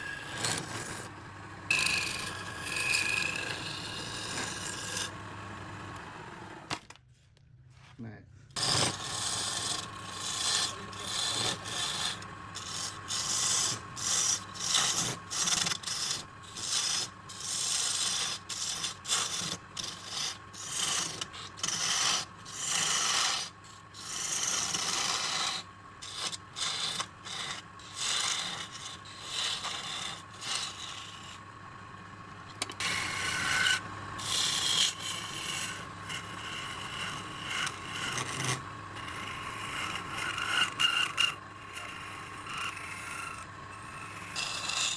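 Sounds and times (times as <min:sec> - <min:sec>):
lathe motor whine: 0:00.0 - 0:06.9, 0:08.6 - 0:44.9
turning tool scraping wood: 0:00.0 - 0:06.9, 0:08.5 - 0:44.9.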